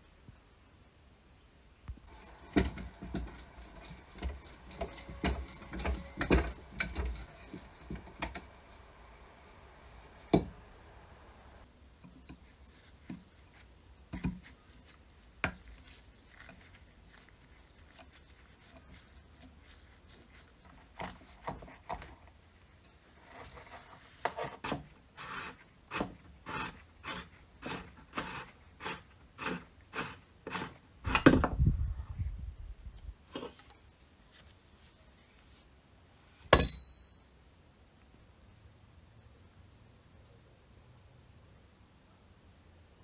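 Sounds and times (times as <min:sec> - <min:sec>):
scraping on metal pump: 0:02.1 - 0:11.5, 0:22.8 - 0:31.4
sharp metallic clink: 0:36.5 - 0:37.6.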